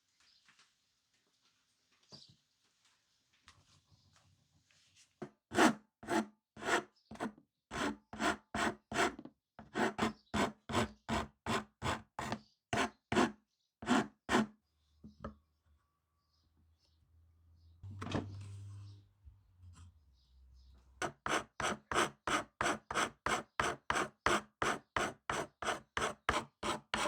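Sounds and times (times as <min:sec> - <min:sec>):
file rasping on wood: 0:05.5 - 0:14.5, 0:21.0 - 0:27.0.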